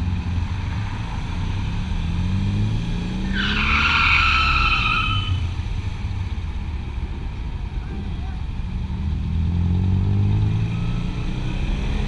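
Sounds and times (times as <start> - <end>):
motorcycle engine rumble: 0.0 - 3.3, 4.5 - 12.0
high squeal: 3.3 - 5.4.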